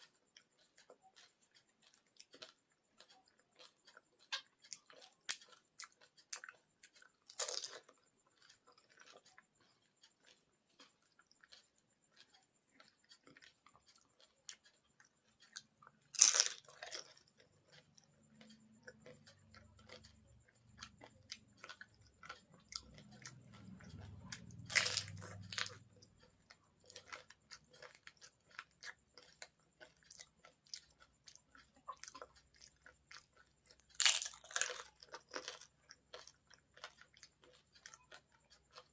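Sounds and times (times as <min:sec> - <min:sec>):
chewing: 0:00.0 - 0:38.9
fried puris crunching: 0:00.0 - 0:38.9.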